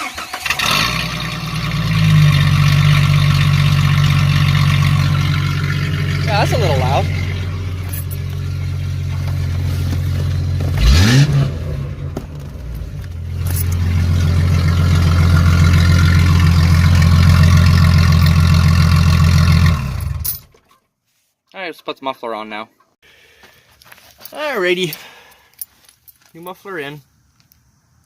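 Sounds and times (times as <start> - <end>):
loud car engine revving: 0.0 - 20.3.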